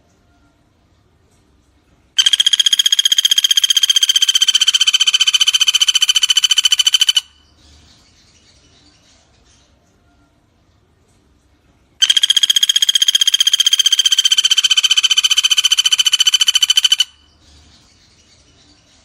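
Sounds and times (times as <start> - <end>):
woodpecker fast trill: 2.2 - 7.5, 12.0 - 17.4.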